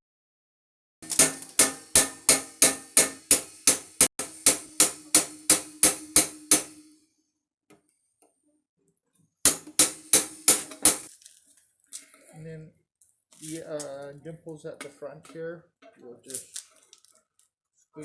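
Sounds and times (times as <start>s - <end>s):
hammer striking tin can: 1.0s - 6.9s, 9.5s - 11.1s.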